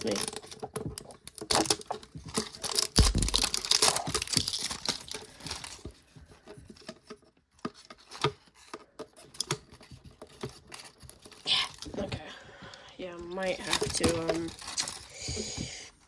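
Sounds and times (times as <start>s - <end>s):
plastic wrapping tearing and crinkling: 0.0s - 6.0s, 13.4s - 15.6s
small clicks and rustles: 0.0s - 16.0s.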